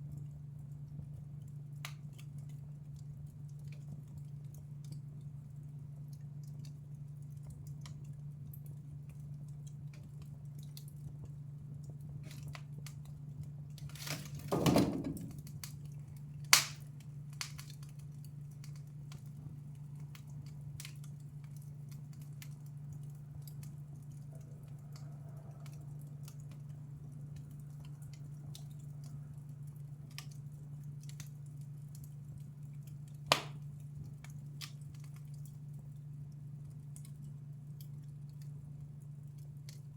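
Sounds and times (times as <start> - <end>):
wood fire crackling: 0.0 - 39.9
loud fire pops: 13.8 - 18.0, 33.2 - 33.7.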